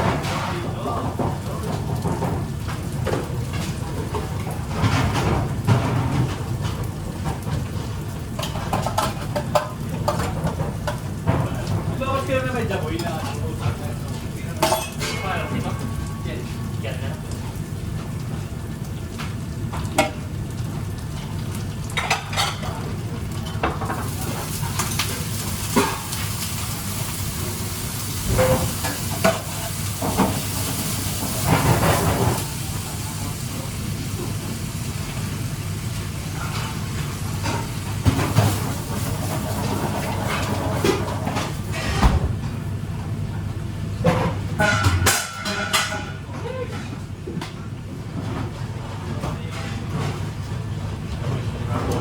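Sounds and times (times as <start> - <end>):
food sizzling in a pan: 14.2 - 40.6
utensils clinking on cookware: 14.6 - 16.7, 22.0 - 26.4, 28.3 - 32.7.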